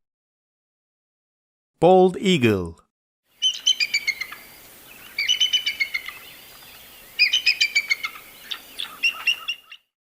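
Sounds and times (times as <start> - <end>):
eagle calling with whistled notes: 3.4 - 9.9.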